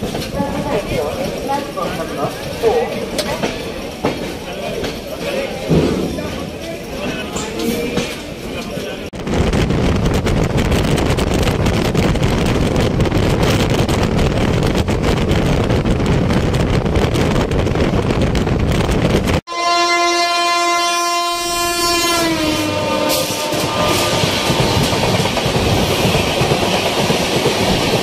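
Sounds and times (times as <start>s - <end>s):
train wheel and wind rush: 0.0s - 28.0s
long train horn: 19.5s - 25.0s.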